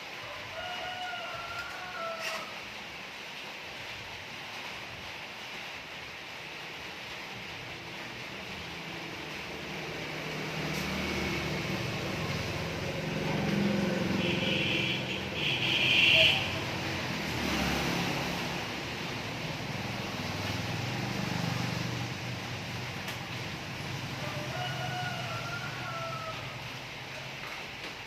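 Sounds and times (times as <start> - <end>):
vehicle engine running: 8.4 - 24.6.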